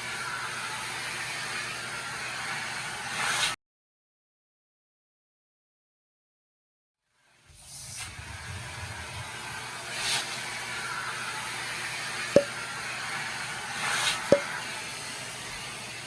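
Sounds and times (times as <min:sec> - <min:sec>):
vacuum cleaner running: 0:00.0 - 0:03.4, 0:08.1 - 0:16.0.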